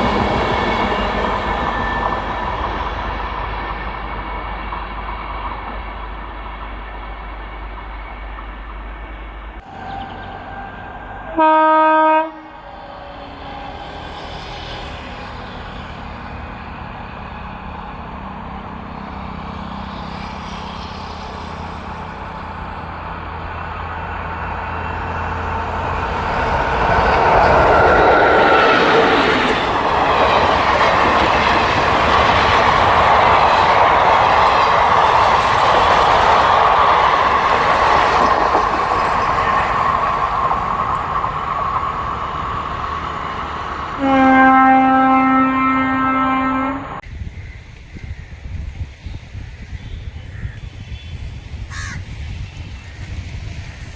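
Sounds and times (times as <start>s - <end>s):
train rumble and wheel clatter: 0.0s - 53.9s
train horn blast: 9.6s - 13.8s, 44.0s - 47.0s.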